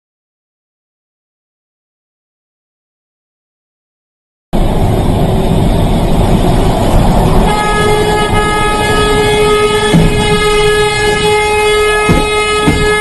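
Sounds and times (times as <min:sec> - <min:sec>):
heavy vehicle rumbling: 0:04.6 - 0:13.0
vehicle horn blaring: 0:07.4 - 0:13.0.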